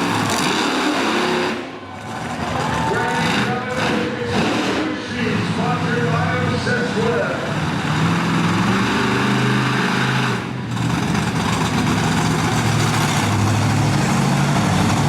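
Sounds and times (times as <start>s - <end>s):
monster truck engine running: 0.0s - 15.0s.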